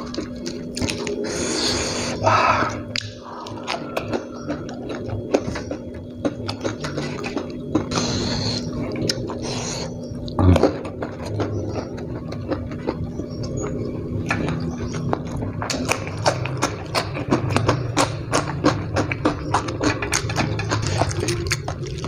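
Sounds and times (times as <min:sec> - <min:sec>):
chewing food: 0:00.0 - 0:22.0
breathy hisses: 0:01.2 - 0:03.4, 0:07.9 - 0:08.8
wet mouth and finger clicks: 0:02.9 - 0:03.8.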